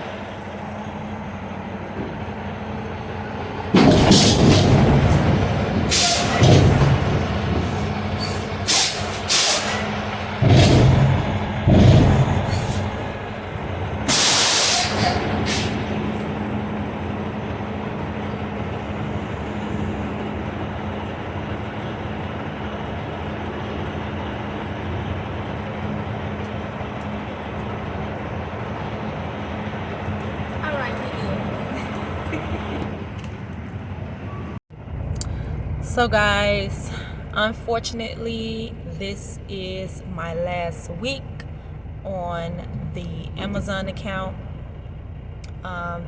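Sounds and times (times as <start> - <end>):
truck engine idling: 0.0 - 46.0
heavy clunks: 3.6 - 16.7
compressed air hiss: 8.7 - 9.8, 14.1 - 15.8.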